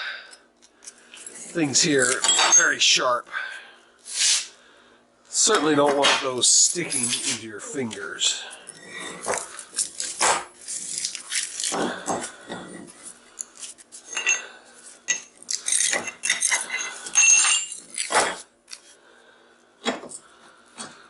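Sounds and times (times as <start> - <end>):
steel laminations clinking and scraping: 1.1 - 3.0, 12.5 - 18.2.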